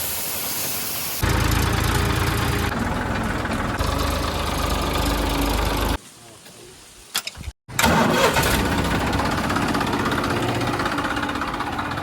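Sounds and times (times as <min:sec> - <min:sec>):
tractor diesel engine running: 0:01.2 - 0:06.0, 0:07.7 - 0:12.0.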